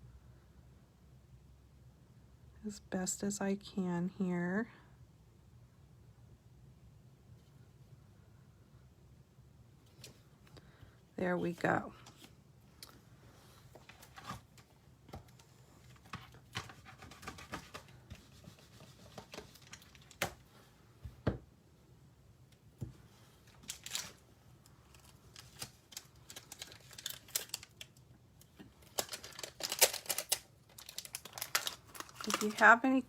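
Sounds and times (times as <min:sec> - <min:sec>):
cardstock rustling: 0:28.9 - 0:33.0.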